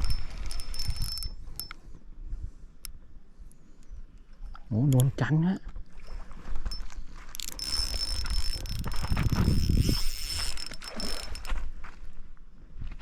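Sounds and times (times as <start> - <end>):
fishing reel drag buzzing: 0.0 - 1.8, 6.7 - 11.6
rod and reel handling: 0.0 - 1.9, 6.4 - 11.7.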